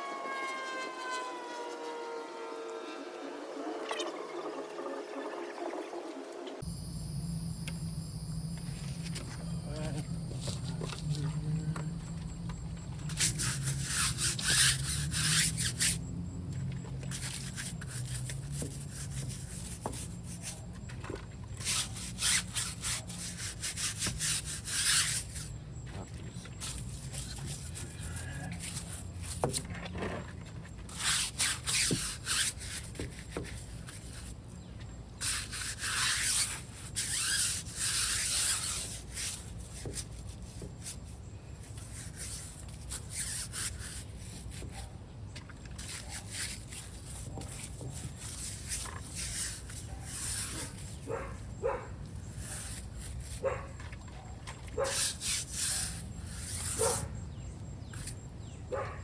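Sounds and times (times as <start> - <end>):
cloth rubbing on car body: 13.1 - 16.0, 30.9 - 34.4, 35.2 - 44.9, 54.8 - 58.1.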